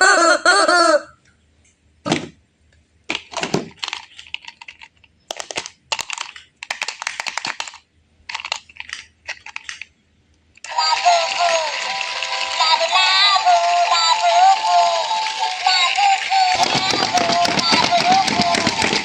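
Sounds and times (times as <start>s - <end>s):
small hard objects clattering: 16.5s - 19.0s.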